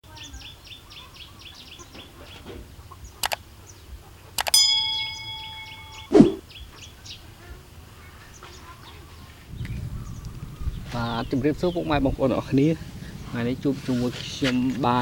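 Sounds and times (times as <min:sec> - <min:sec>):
bell-like ding: 0:04.6 - 0:06.4
short falling swoosh: 0:06.1 - 0:06.4.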